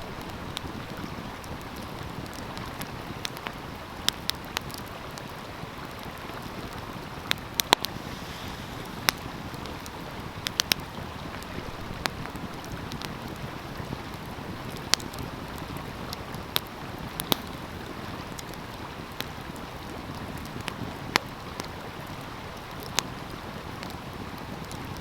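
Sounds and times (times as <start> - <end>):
wood fire crackling and popping: 0.0 - 25.0
stream water rushing: 4.7 - 22.5.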